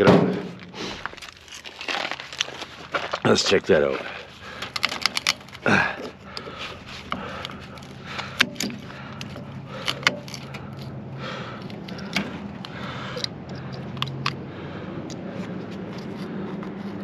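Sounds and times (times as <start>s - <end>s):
low steady hum: 0.0s - 17.0s
metal clinking and scraping: 4.2s - 14.4s, 15.1s - 17.0s.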